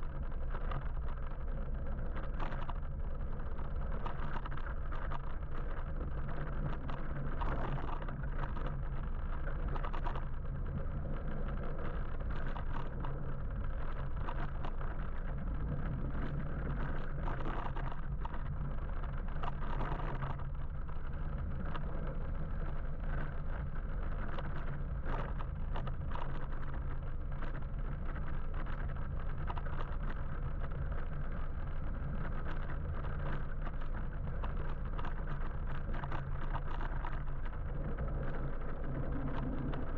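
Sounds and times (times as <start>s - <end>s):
faint clicks: 0.0s - 39.9s
road and wind noise: 0.0s - 39.9s.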